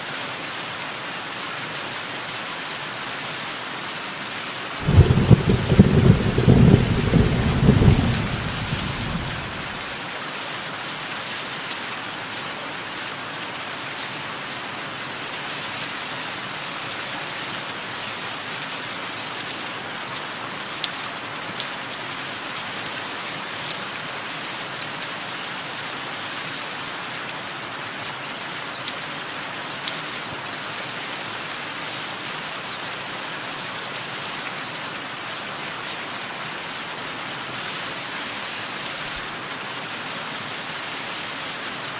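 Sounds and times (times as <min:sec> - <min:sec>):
steady rain: 0:00.0 - 0:41.9
thunder rolling: 0:04.8 - 0:09.9.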